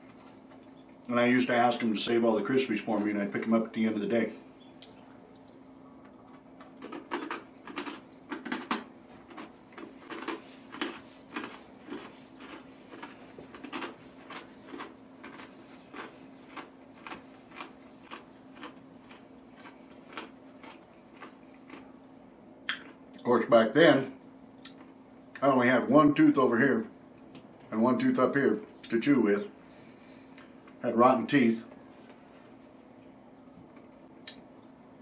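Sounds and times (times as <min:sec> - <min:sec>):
crunchy chewing: 0:04.6 - 0:23.3, 0:24.1 - 0:25.4.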